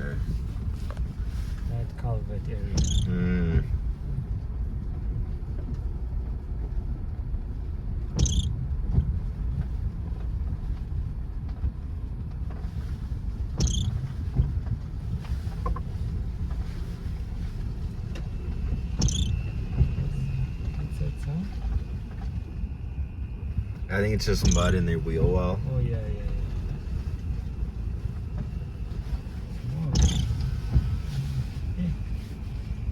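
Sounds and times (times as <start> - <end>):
car engine and tyres rumbling: 0.0 - 32.9
short high squeaks: 2.7 - 3.2, 8.2 - 8.5, 13.6 - 14.1, 19.0 - 19.8, 29.9 - 30.5
thin steady whine: 15.6 - 32.9.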